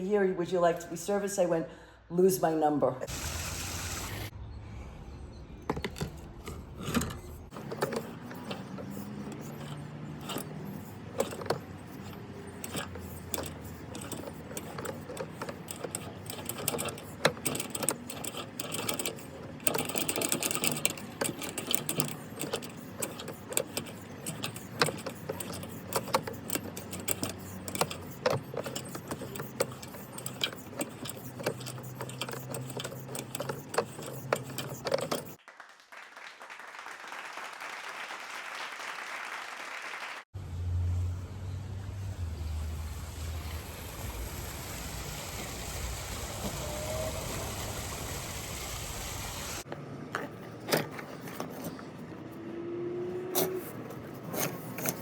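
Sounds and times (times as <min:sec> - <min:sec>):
spinning cable clattering: 0:05.7 - 0:35.4
drain cleaning machine motor humming: 0:42.2 - 0:49.6.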